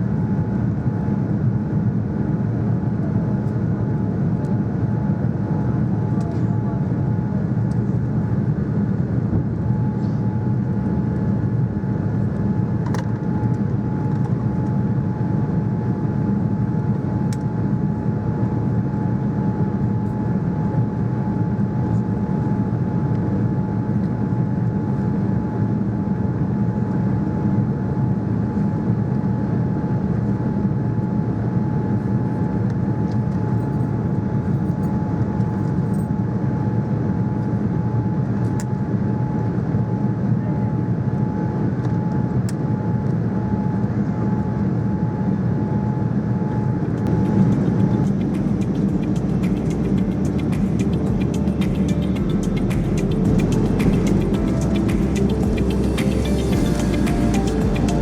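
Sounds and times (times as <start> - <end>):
aircraft cabin drone: 0.0 - 58.0
faint steady whine: 31.3 - 58.0.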